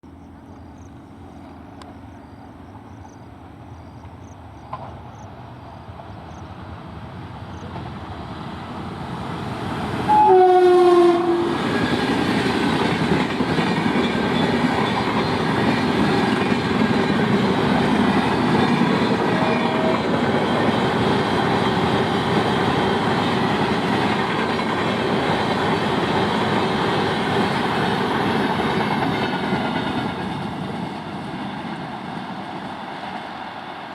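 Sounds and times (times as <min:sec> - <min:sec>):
train approaching and passing: 0:00.0 - 0:33.9
wheels rushing on rail: 0:00.0 - 0:33.9
locomotive horn: 0:10.1 - 0:11.7.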